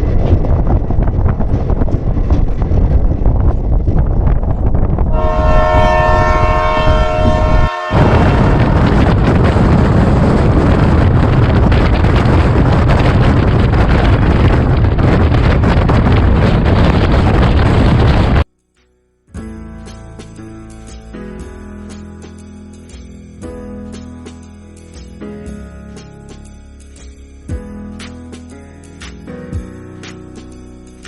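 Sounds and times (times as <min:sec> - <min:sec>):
train rumbling: 0:00.0 - 0:18.5
train horn: 0:05.1 - 0:09.3.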